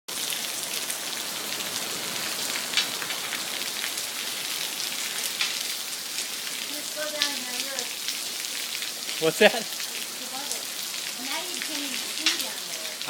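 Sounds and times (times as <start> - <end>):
heavy rain pouring: 0.1 - 13.0
drip and splash taps: 7.1 - 7.9, 11.3 - 12.7.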